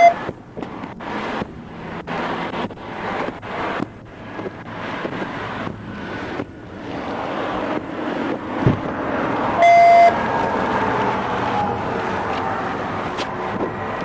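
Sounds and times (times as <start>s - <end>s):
loud electronic beep: 0.0s - 0.2s, 9.6s - 10.2s
steady rushing noise: 0.0s - 14.0s.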